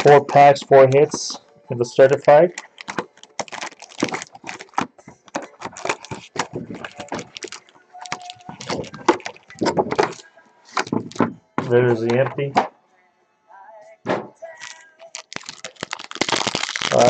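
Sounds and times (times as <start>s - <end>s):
plastic wrap and cardboard crinkling: 0.0s - 1.2s, 2.0s - 11.3s, 14.5s - 17.0s.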